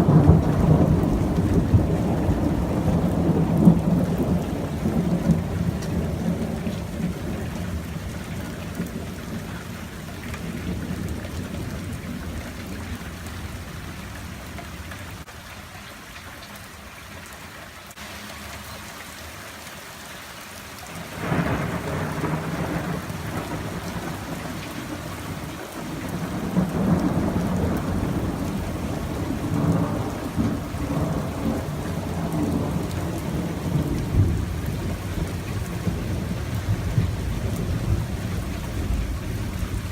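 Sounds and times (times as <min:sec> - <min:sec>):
rolling thunder: 0:00.0 - 0:09.8, 0:21.1 - 0:39.9
steady rain: 0:00.0 - 0:39.9.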